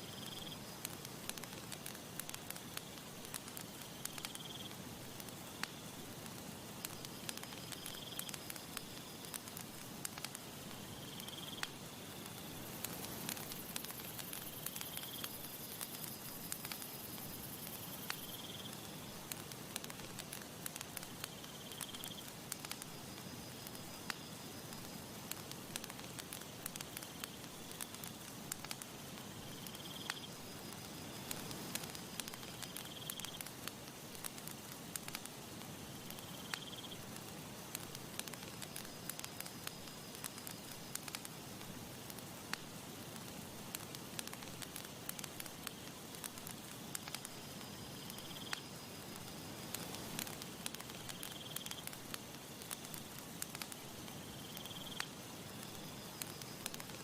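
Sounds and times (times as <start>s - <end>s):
campfire crackling and popping: 0.0s - 57.0s.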